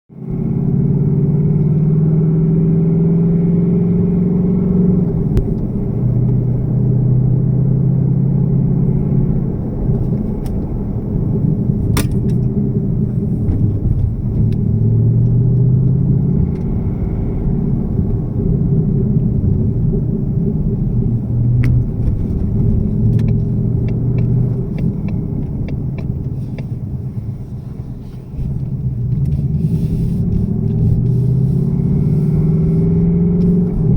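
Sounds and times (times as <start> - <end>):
car engine idling with rattle: 9.2 - 15.7, 16.3 - 32.8.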